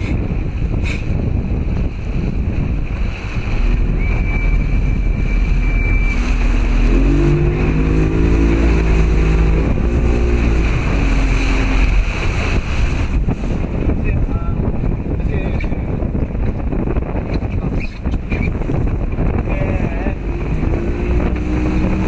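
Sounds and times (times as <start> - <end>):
steady low rumble: 0.0 - 22.0
wind buffeting microphone: 0.0 - 22.0.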